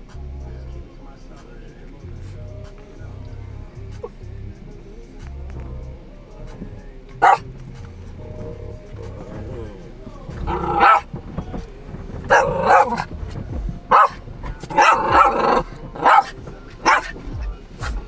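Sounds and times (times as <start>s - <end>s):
dog barking: 7.2s - 7.4s, 10.5s - 11.1s, 12.3s - 13.1s, 13.9s - 17.2s.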